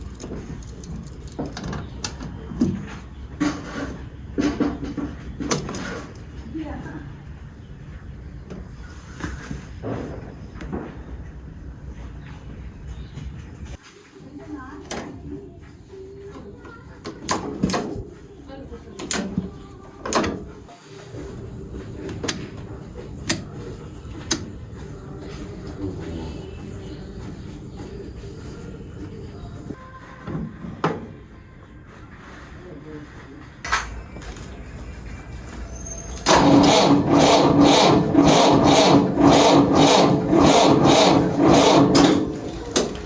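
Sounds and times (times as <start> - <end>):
tractor diesel engine running: 36.2 - 43.0.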